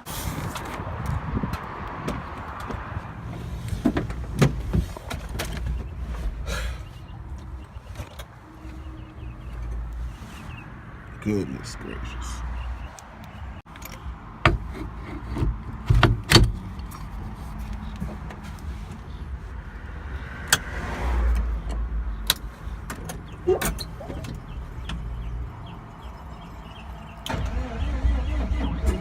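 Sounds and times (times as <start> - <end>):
vehicle engine rumbling: 0.0 - 29.0
sharp knocks and clicks: 13.2 - 17.0.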